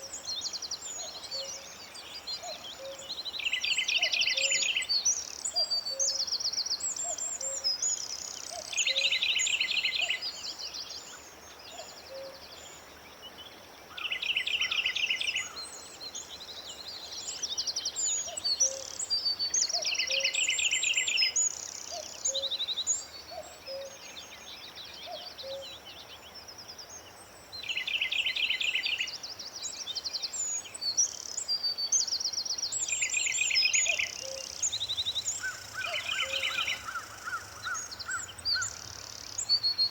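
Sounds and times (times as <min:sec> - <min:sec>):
birds chirping and whistling: 0:32.8 - 0:39.9.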